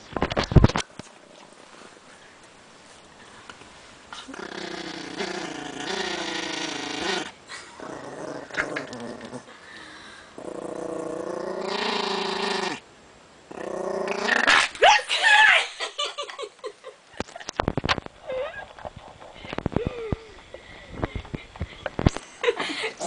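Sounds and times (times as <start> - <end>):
dog growling: 4.2 - 9.6, 10.3 - 12.8, 13.5 - 14.7.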